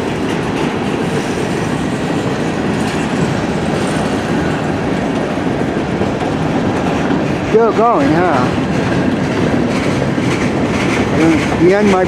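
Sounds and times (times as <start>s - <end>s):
freight train rumbling past: 0.0s - 12.0s
wheels clacking over rail joints: 0.0s - 12.0s.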